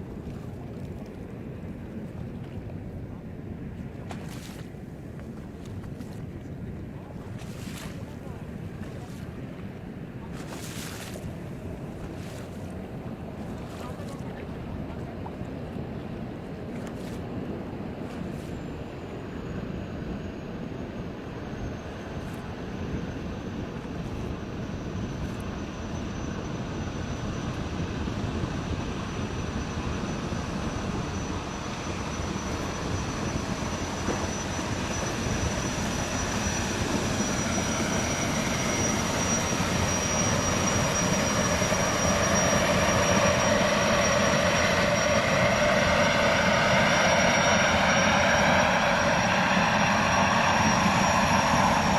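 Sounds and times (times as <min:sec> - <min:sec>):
engine whining and rumbling: 0:17.2 - 0:51.9.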